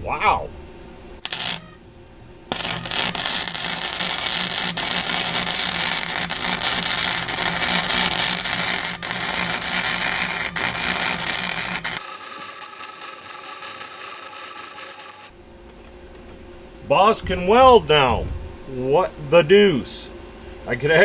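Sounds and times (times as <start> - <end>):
welder arc crackling: 1.3 - 1.6, 2.5 - 15.3.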